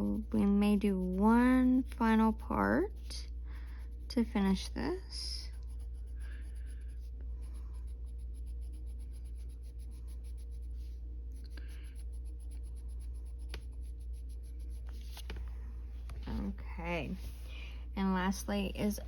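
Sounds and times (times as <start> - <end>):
colored pencil scratching on paper: 0.0 - 15.4.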